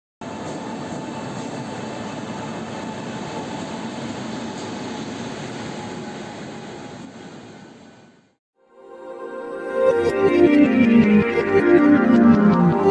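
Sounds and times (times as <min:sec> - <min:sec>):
train rumbling on rails: 0:00.2 - 0:08.4.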